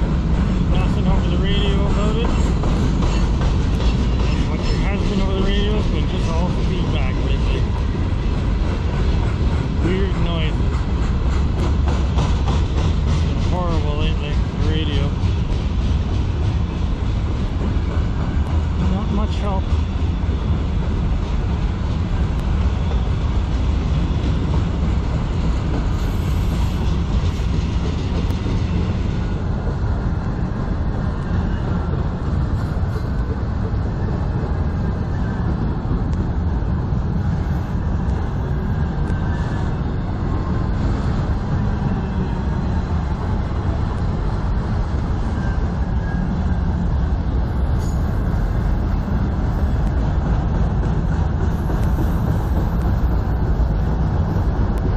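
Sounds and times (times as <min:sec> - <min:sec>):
freight train wheels rumbling: 0:00.0 - 0:54.9.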